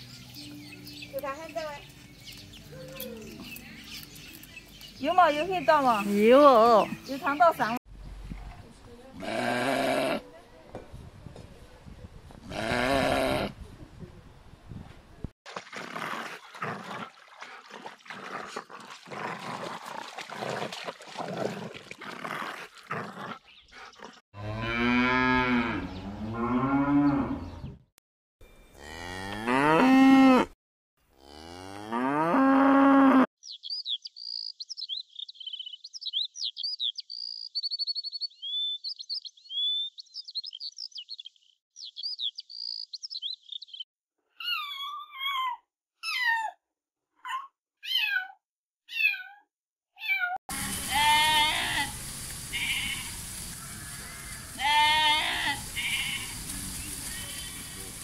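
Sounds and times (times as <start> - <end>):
cow mooing: 28.8 - 30.6, 31.2 - 33.3
crackling rustling noise: 50.5 - 58.0.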